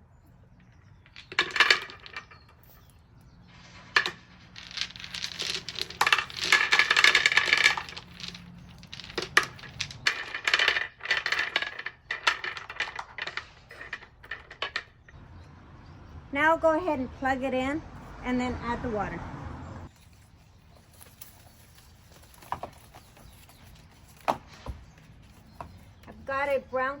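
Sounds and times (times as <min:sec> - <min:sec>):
cobblestones clacking together: 0:04.0 - 0:15.2.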